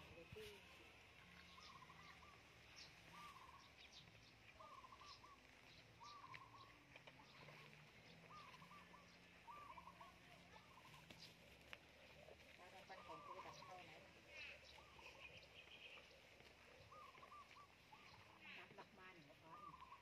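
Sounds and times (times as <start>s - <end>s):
faint trilled bird calls: 0.0s - 20.0s
high bird chirps: 1.3s - 11.4s.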